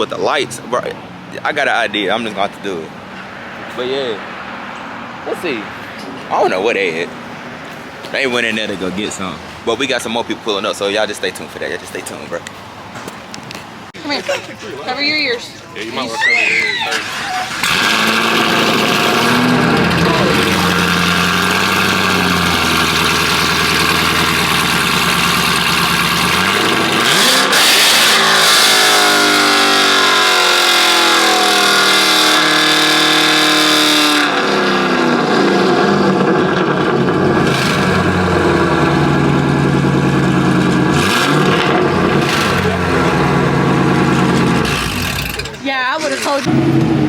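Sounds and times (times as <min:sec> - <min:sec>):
car engine idling and revving: 0:17.0 - 0:47.0.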